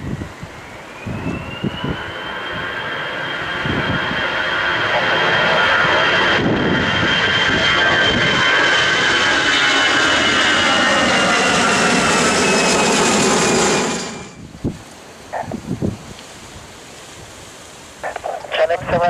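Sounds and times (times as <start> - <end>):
wind gusts on microphone: 0.0 - 2.8, 3.4 - 4.4, 5.8 - 8.6, 14.2 - 19.0
jet airliner engine whine: 0.0 - 19.0.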